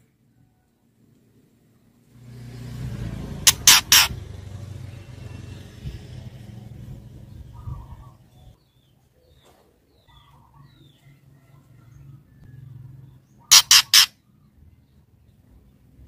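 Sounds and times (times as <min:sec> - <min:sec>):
bird harsh rasping notes: 0:03.1 - 0:05.5, 0:13.4 - 0:14.2
bird chirping softly: 0:03.5 - 0:16.0.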